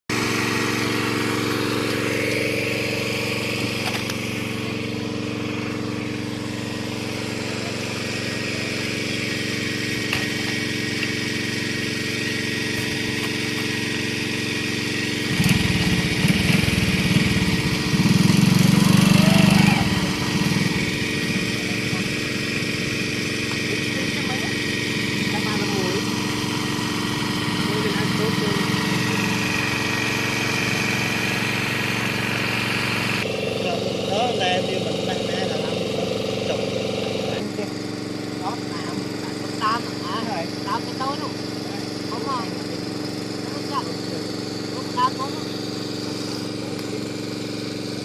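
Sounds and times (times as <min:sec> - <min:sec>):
small engine running: 0:00.0 - 0:48.0.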